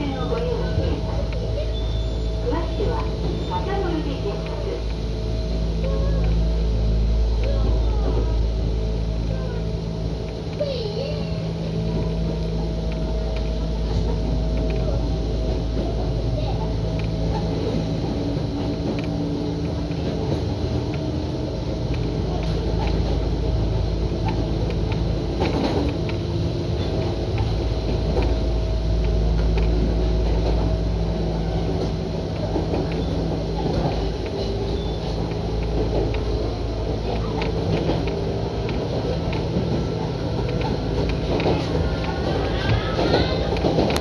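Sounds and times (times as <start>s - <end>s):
train running gear drone: 0.0s - 44.0s
wheels knocking on track: 11.5s - 44.0s.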